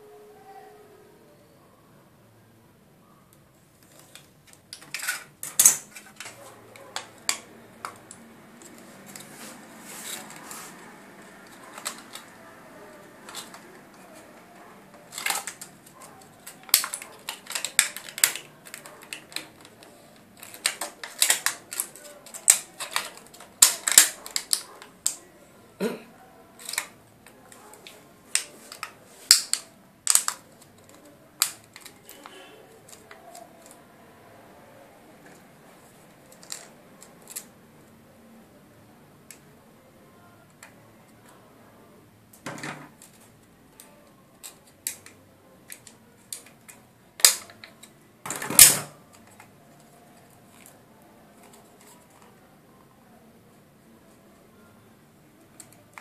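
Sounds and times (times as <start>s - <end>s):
sharp clicks and snaps: 15.1s - 25.2s, 26.6s - 33.8s, 43.8s - 48.0s.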